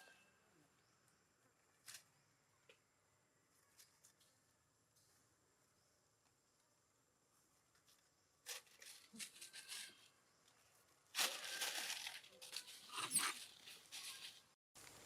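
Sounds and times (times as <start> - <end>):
crinkling tearing rustle: 8.5 - 10.1, 11.1 - 15.0.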